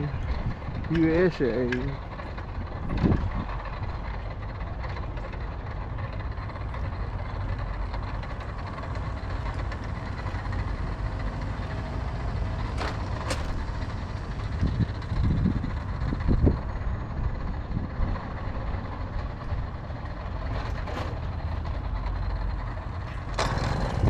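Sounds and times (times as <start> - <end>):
dense low rumble: 0.0 - 24.0
moped engine running: 22.7 - 24.0.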